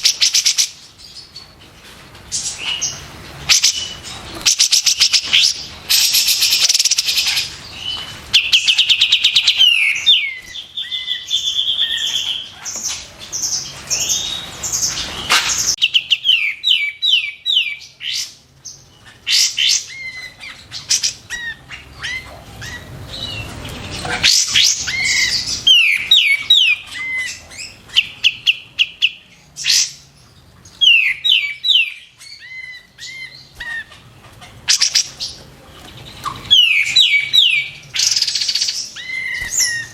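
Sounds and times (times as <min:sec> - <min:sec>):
bird trills and whistles: 0:36.2 - 0:39.9.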